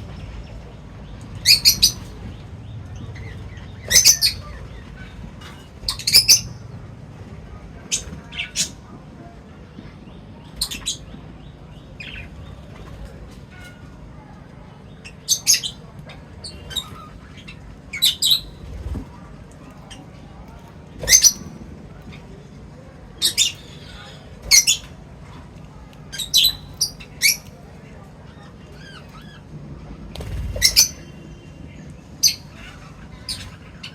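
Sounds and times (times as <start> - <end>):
small birds chirping: 0.0 - 6.9, 7.5 - 9.0, 9.6 - 29.5, 30.2 - 33.9.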